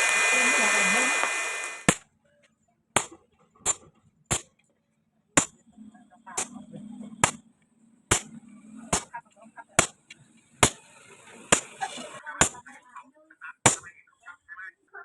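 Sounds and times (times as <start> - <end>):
hammer striking metal: 8.1 - 9.1.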